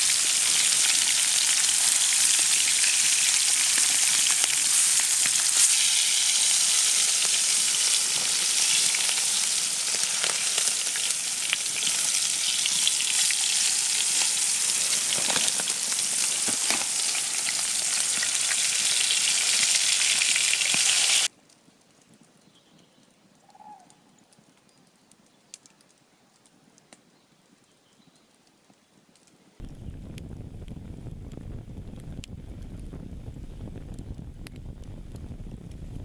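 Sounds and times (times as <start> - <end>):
food sizzling in a frying pan: 0.0 - 21.3.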